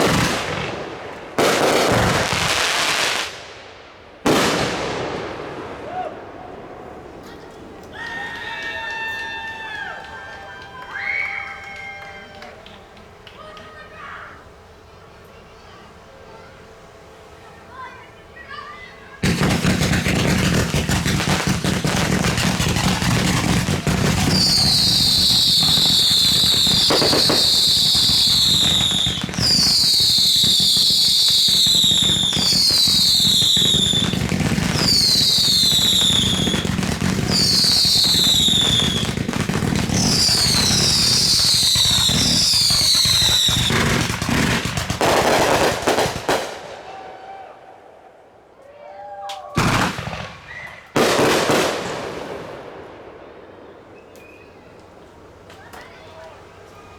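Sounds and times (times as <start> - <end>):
fireworks crackling bangs: 0.0 - 13.3, 19.2 - 47.0, 49.6 - 56.9
high falling whistles: 53.9 - 54.8.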